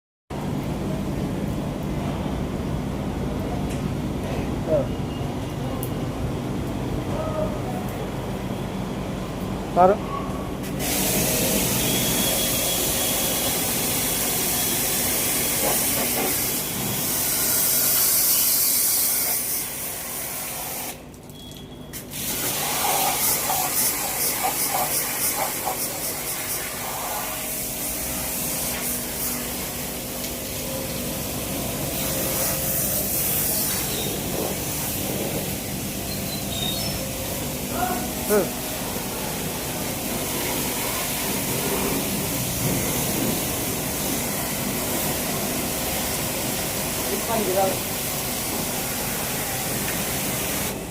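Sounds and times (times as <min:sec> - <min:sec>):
high-pressure water spray hissing: 0:10.6 - 0:21.1, 0:21.9 - 0:50.9
pump motor running: 0:10.7 - 0:21.1, 0:22.1 - 0:50.9.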